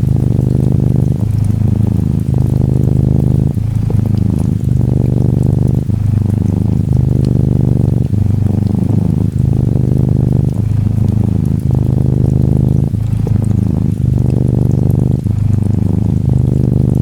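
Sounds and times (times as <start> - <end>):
gentle rain patter: 0.0 - 17.0
kitten purring: 0.0 - 17.0.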